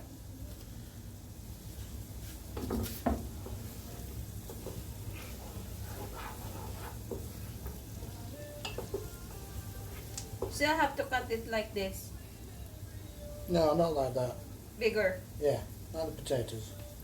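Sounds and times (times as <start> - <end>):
onion and garlic sizzling: 0.0 - 17.0
spoon clinking against pot: 8.6 - 9.1.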